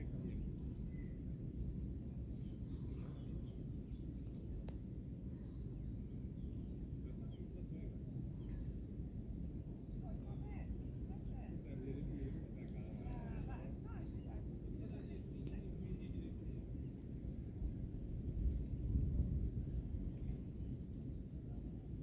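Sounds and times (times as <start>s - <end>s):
insects chirping: 0.0s - 22.0s
faint bird chirps: 0.1s - 1.2s, 2.3s - 4.4s, 5.3s - 8.8s.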